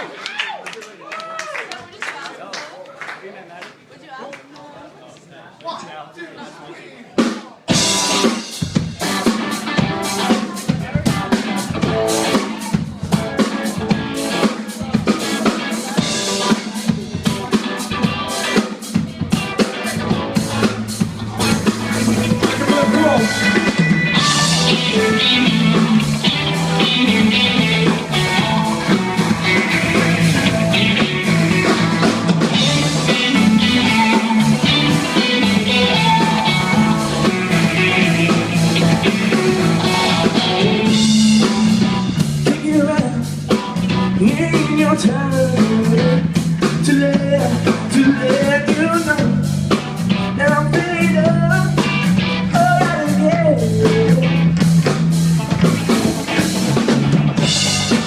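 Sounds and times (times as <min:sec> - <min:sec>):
live rock band playing: 0:07.2 - 0:58.0.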